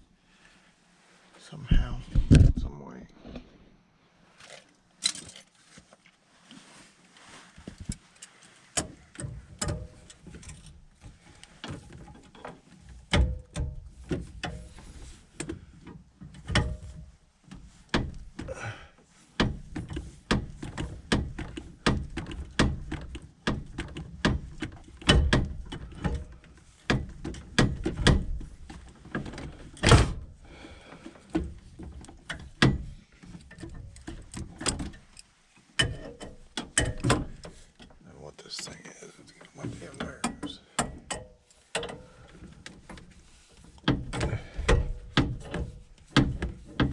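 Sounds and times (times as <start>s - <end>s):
wrenches clanking on metal pipes: 35.7s - 37.7s.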